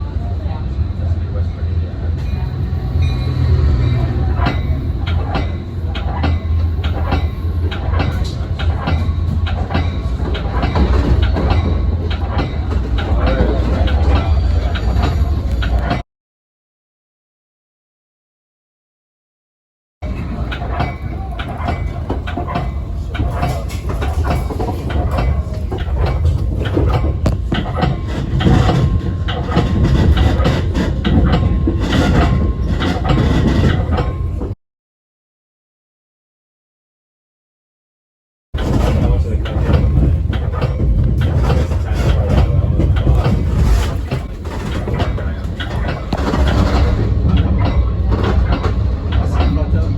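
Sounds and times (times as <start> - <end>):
train rolling rumble: 0.0 - 16.0, 20.0 - 34.6, 38.6 - 49.9
wheels clacking over track joints: 2.2 - 16.0, 20.0 - 34.6, 38.6 - 49.9.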